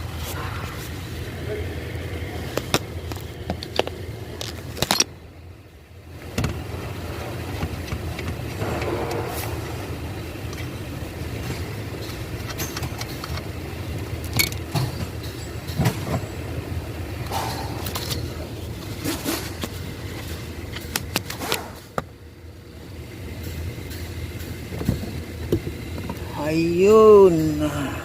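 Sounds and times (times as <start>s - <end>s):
metallic clicks and knocks of tools: 12.0s - 13.5s, 14.2s - 15.8s.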